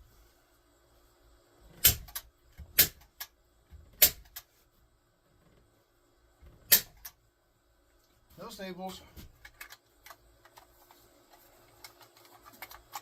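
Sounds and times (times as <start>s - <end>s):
staple gun firing: 1.8s - 2.2s, 2.8s - 3.3s, 6.7s - 7.2s.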